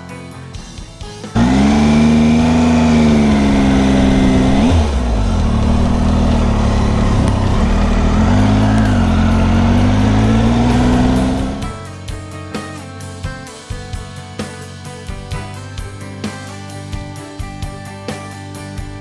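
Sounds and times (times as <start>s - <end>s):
motorcycle engine while riding: 1.4s - 11.7s.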